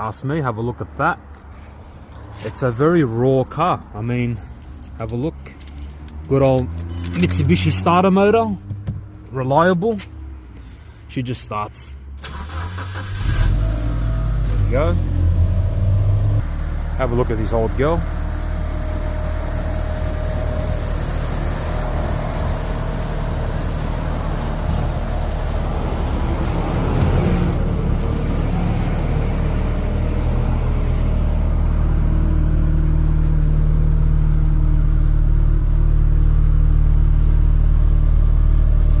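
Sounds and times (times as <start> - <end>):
car engine running: 5.7 - 9.2, 13.5 - 39.0.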